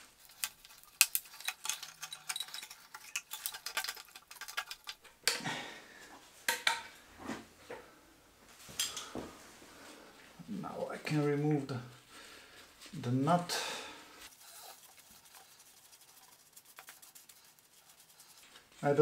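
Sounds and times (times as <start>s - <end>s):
metal tools clinking: 0.3s - 5.0s.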